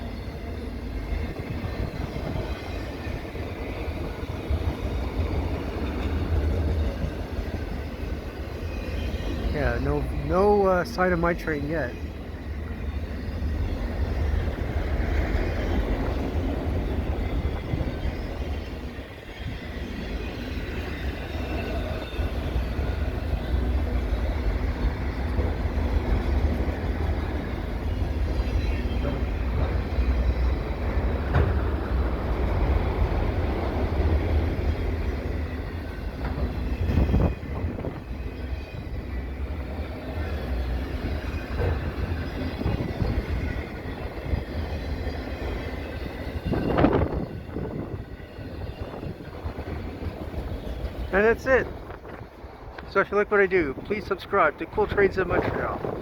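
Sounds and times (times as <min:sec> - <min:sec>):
freight train cars rumbling: 0:00.0 - 0:56.0
wind buffeting microphone: 0:41.1 - 0:44.7, 0:45.8 - 0:52.9, 0:54.6 - 0:56.0.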